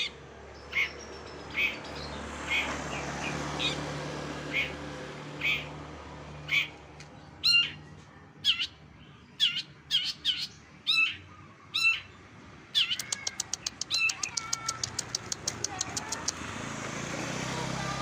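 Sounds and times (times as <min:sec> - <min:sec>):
bird calls: 0:00.0 - 0:03.8, 0:04.5 - 0:04.8, 0:05.4 - 0:05.8, 0:06.4 - 0:16.5
fast bird ticks: 0:12.8 - 0:16.4.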